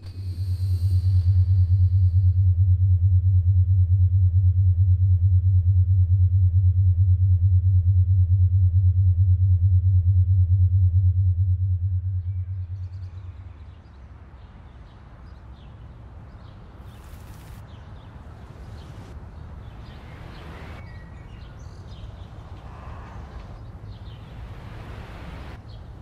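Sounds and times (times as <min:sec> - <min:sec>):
steady low rumble: 0:00.0 - 0:14.3, 0:15.9 - 0:26.0
bird chirps: 0:12.2 - 0:26.0.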